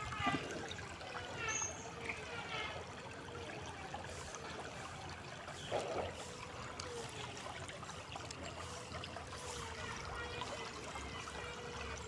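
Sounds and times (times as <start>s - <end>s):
river water burbling over stones: 0.0s - 12.0s.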